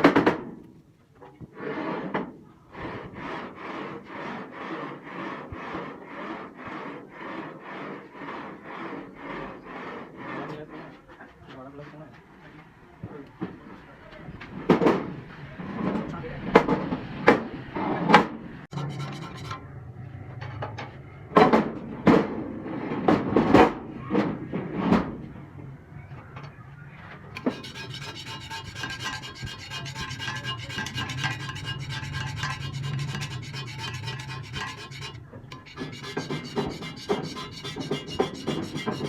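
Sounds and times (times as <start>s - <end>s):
cutting tool scraping metal: 18.7s - 19.6s, 27.4s - 39.0s
metal lathe humming: 27.4s - 39.0s.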